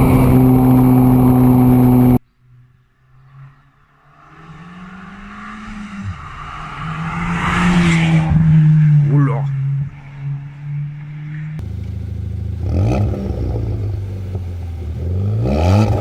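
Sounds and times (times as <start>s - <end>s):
car engine revving high: 0.0s - 2.2s, 11.6s - 16.0s
car passing by: 0.0s - 11.7s.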